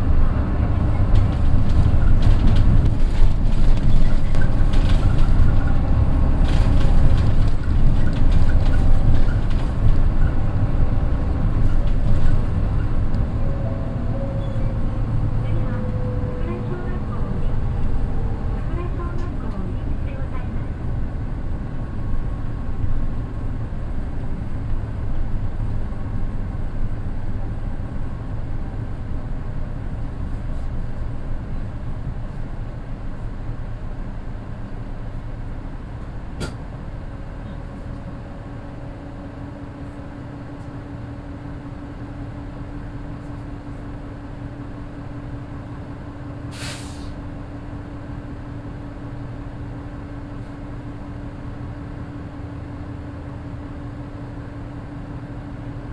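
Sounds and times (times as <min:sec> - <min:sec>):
bus diesel engine idling: 0:00.0 - 0:55.9
air brake hiss: 0:46.5 - 0:47.3.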